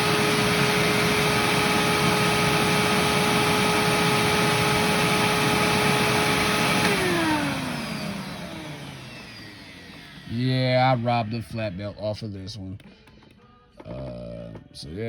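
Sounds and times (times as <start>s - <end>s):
vacuum motor whine: 0.0s - 10.6s.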